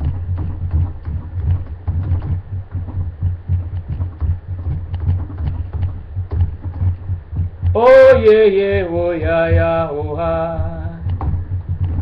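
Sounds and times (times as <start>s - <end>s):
low pulsing beat: 0.0s - 12.0s
light clicks: 11.0s - 12.0s.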